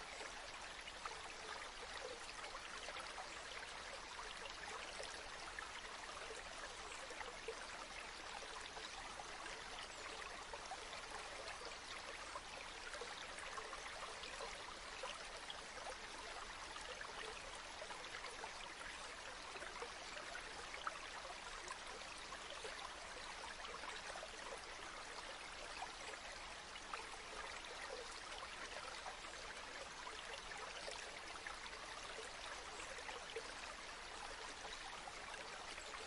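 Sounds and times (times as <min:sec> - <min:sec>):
water trickles and splashes: 0:00.0 - 0:36.0.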